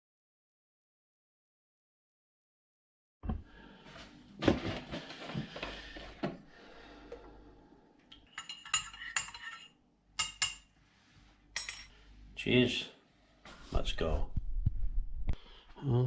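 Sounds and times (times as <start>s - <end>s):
rustling handling noise: 3.8s - 6.4s.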